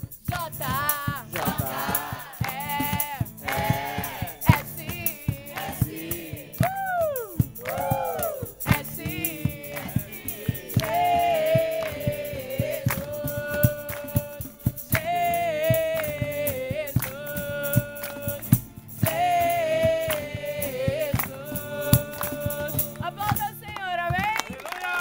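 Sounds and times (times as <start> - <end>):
sharp percussion hits: 0.0 - 23.5
long held sung notes: 0.9 - 18.4.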